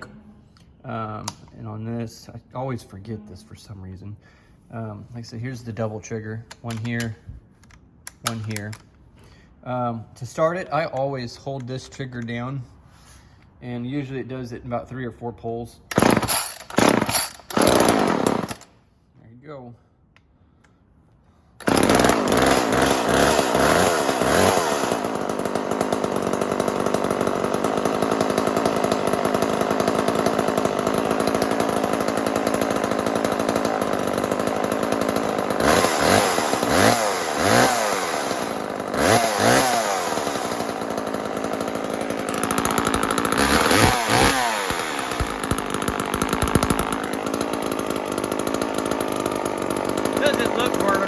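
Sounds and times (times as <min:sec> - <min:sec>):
chainsaw engine revving: 0:15.9 - 0:18.7, 0:21.6 - 0:51.0.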